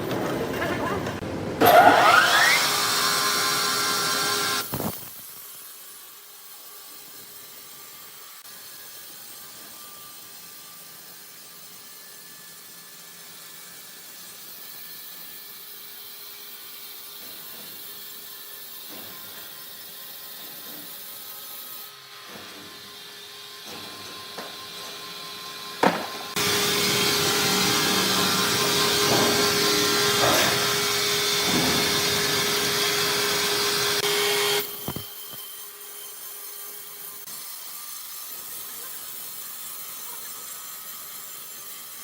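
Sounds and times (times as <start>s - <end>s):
saw cutting with rising whine: 1.6s - 4.9s, 22.8s - 37.4s.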